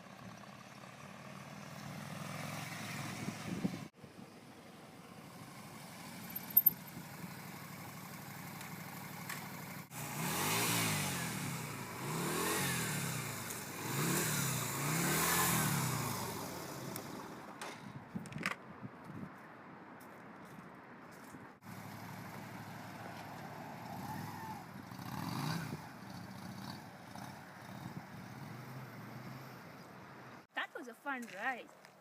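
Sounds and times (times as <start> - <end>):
motorcycle engine revving: 0.2 - 3.9, 8.0 - 17.5, 23.8 - 29.6.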